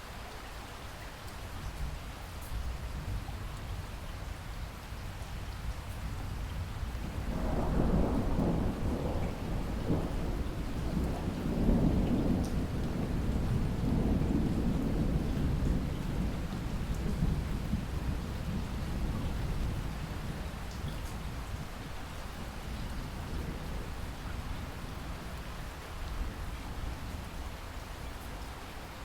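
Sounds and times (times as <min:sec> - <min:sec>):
rain: 0:00.0 - 0:29.0
rolling thunder: 0:06.1 - 0:25.4.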